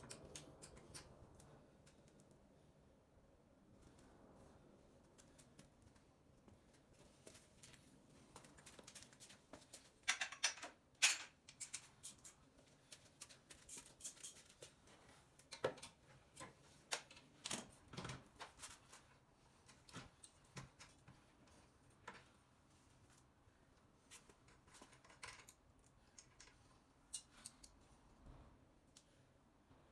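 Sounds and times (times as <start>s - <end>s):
hand tools clicking and tapping: 0.0s - 1.2s.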